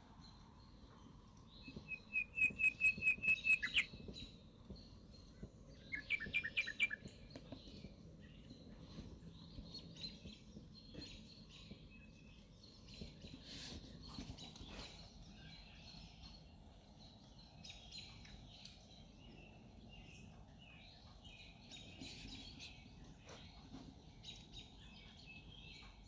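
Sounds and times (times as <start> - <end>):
faint bird chirps: 0.2 - 26.0
bird singing repeated notes: 1.4 - 8.6.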